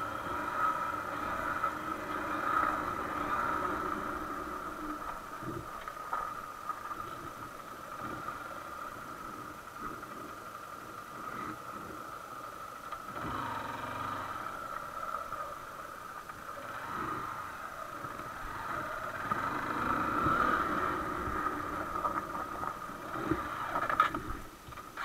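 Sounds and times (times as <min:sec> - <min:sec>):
motorcycle engine idling and revving: 0:00.0 - 0:25.0.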